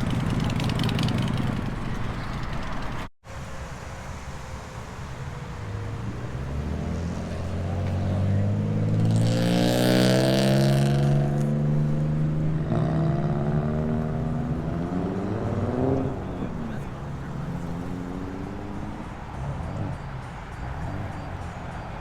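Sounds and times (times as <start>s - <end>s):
car passing by: 0.0s - 22.0s.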